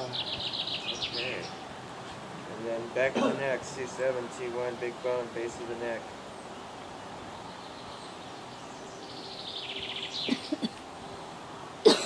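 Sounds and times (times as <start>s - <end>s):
bird singing rapid high trill: 0.0s - 1.6s, 6.3s - 10.8s
outdoor background hiss: 0.0s - 12.0s.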